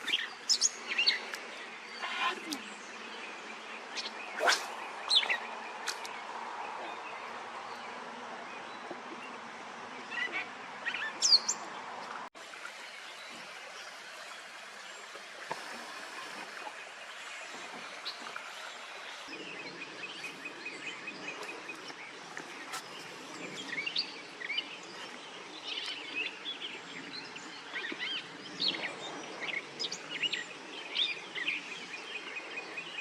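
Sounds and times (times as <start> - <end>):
small birds chirping: 0.0 - 8.0
outdoor background hiss: 0.0 - 33.0.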